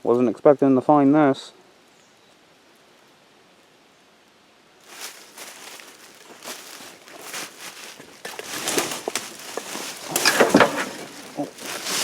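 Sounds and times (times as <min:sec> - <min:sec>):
crackling and rustling: 0:04.8 - 0:12.0.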